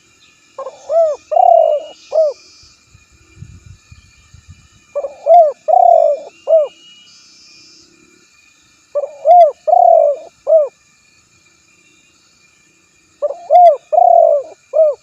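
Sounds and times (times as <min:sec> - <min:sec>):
dove cooing: 0:00.6 - 0:02.4, 0:05.0 - 0:06.8, 0:09.0 - 0:10.7, 0:13.2 - 0:15.0.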